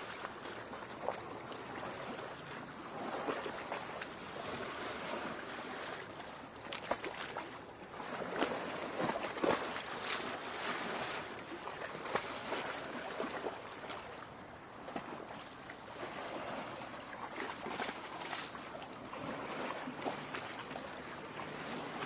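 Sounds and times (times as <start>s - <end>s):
water splashes and drips: 0.0s - 4.6s, 5.7s - 7.6s, 17.1s - 22.0s
lake water lapping against rocks: 0.0s - 22.0s.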